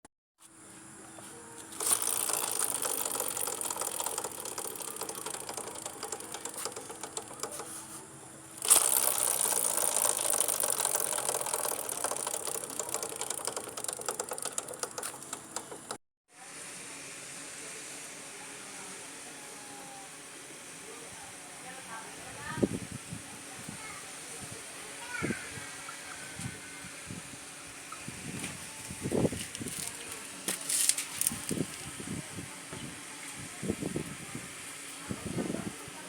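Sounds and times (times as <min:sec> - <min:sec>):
steady running noise: 0:01.0 - 0:16.0
motorcycle drive chain rattling: 0:01.7 - 0:16.0.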